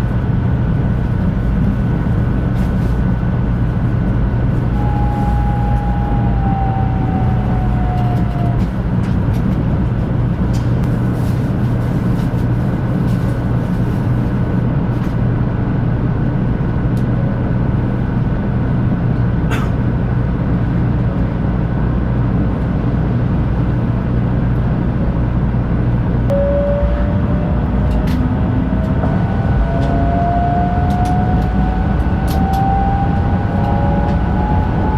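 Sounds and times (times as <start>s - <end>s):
train running rumble: 0.0s - 34.9s
faint rising whine: 4.2s - 8.7s, 26.3s - 34.9s.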